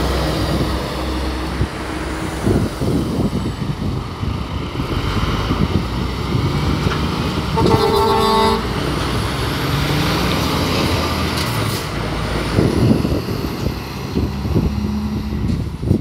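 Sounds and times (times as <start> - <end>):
truck horn: 7.5 - 8.8.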